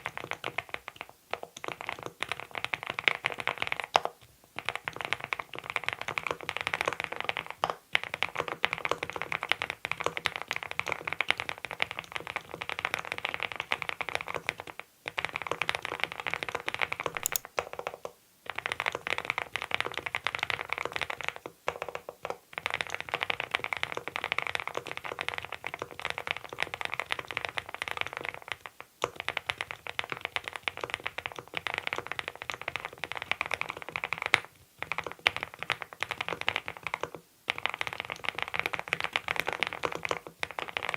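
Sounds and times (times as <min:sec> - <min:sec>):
mechanical keyboard typing: 0:17.2 - 0:17.5.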